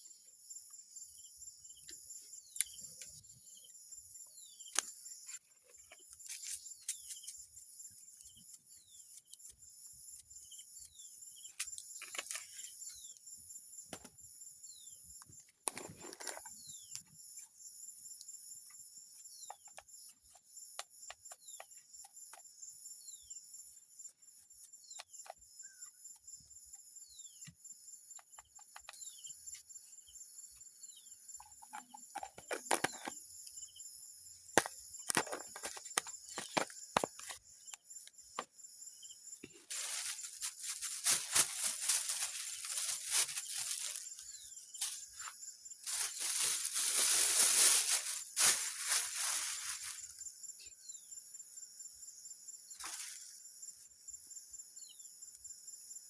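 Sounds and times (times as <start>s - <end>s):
crickets and insects buzzing: 0.0s - 56.0s
rustle: 39.7s - 50.2s.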